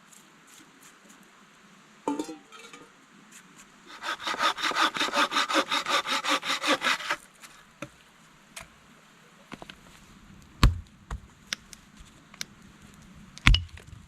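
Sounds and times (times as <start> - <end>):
hand saw cutting wood: 3.9 - 7.2.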